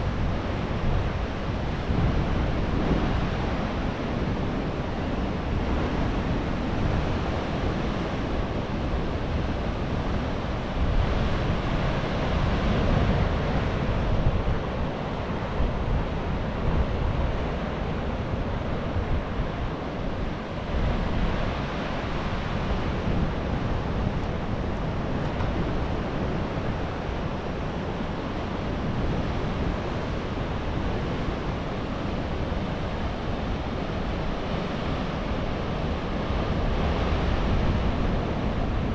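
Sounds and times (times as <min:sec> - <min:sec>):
wind on microphone: 0:00.0 - 0:38.9.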